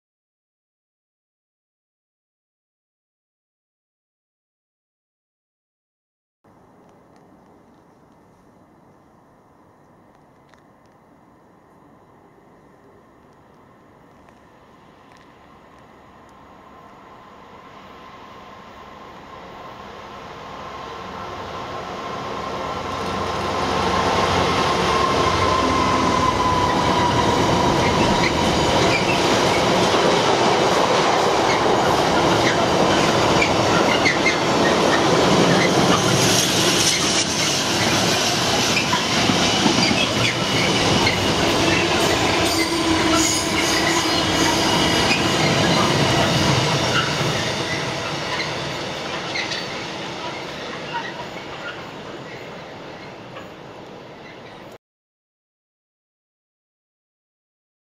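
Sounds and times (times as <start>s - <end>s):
diesel locomotive passing: 6.6s - 54.8s
wagons rumbling over rails: 14.6s - 54.8s.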